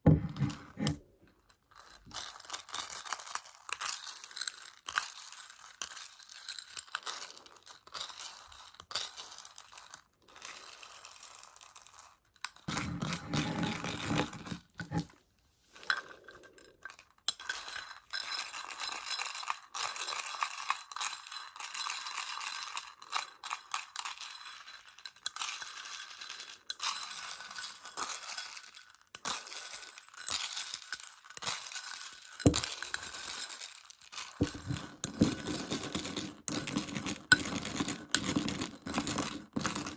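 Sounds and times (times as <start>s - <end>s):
candy pellets rattling in plastic case: 27.2s - 39.9s.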